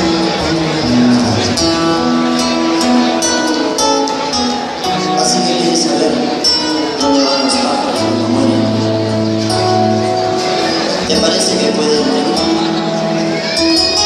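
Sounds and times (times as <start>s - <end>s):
folk band playing: 0.0s - 14.0s.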